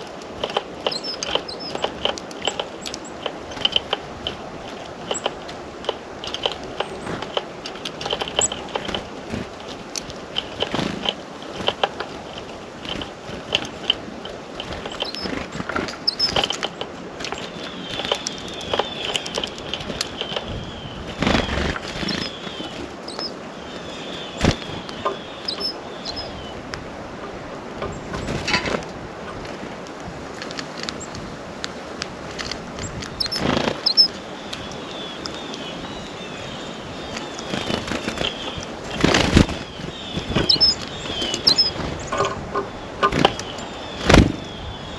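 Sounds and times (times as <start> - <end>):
songbirds chirping: 0.0 - 44.9
beaks tapping on feeder: 0.3 - 20.6, 21.2 - 23.3, 24.4 - 26.3, 32.8 - 35.7, 37.0 - 44.3
rapid bird call notes: 10.3 - 26.6, 33.2 - 44.9.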